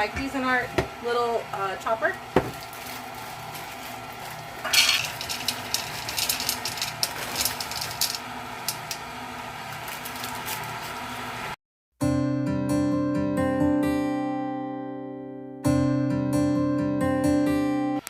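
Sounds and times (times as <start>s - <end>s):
rattles and clicks: 4.7s - 9.0s
stand mixer motor hum: 5.2s - 11.6s.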